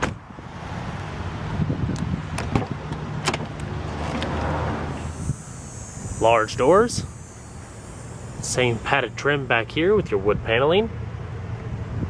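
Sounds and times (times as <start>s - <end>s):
car door latch clicks: 1.9s - 4.4s
steady low hum: 2.8s - 12.0s.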